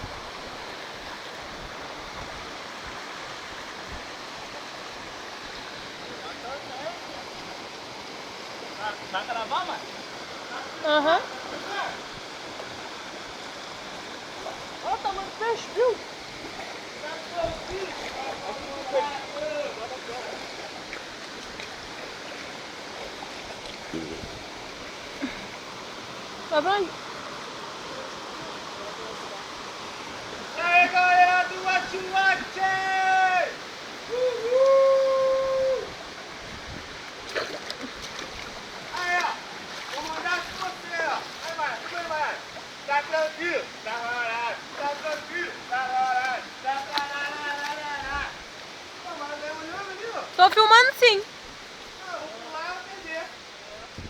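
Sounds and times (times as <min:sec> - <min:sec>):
flowing water rushing: 0:00.0 - 0:54.0
person's voice: 0:50.4 - 0:51.2.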